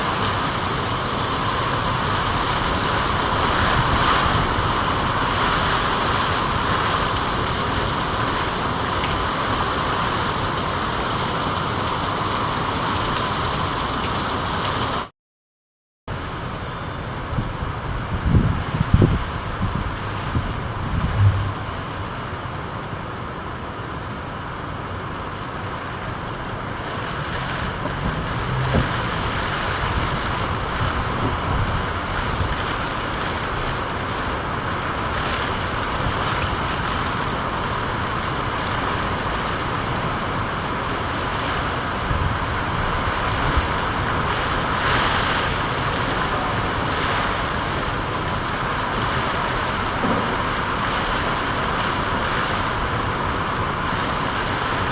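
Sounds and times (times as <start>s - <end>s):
steady rain falling: 0.0s - 15.1s, 16.1s - 54.9s
faint low knocks: 21.0s - 21.9s.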